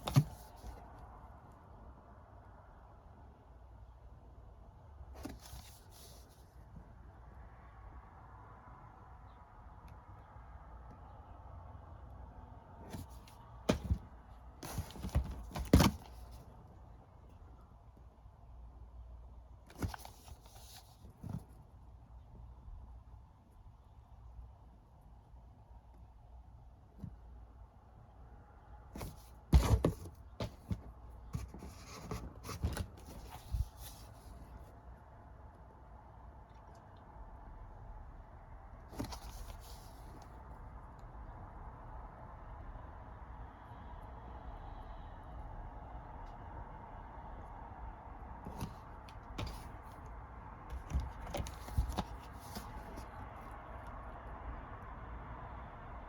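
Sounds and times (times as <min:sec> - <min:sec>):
plastic cases knocking: 0:12.9 - 0:16.3, 0:29.0 - 0:33.3, 0:50.7 - 0:53.1
packaging rustling: 0:12.9 - 0:16.4, 0:50.7 - 0:53.2
cases clicking: 0:50.7 - 0:53.2.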